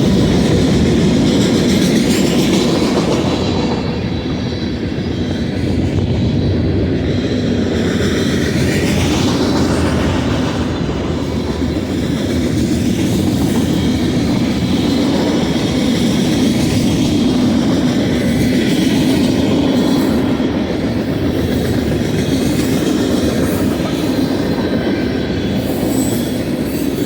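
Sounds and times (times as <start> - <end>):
wheels clacking over rails: 0.0 - 5.9
freight train rumbling past: 0.0 - 27.0.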